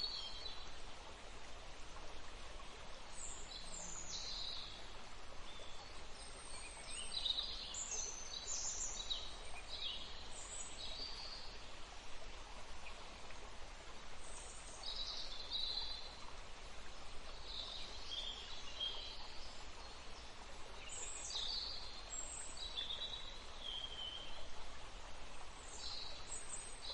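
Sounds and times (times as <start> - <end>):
stream flowing: 0.0 - 26.9
songbirds singing: 3.1 - 11.8, 14.1 - 24.6, 25.6 - 26.9.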